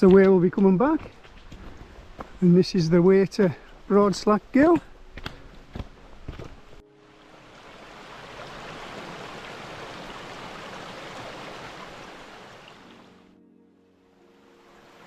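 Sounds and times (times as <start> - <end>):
stream water rushing: 5.7 - 13.3, 14.3 - 15.0.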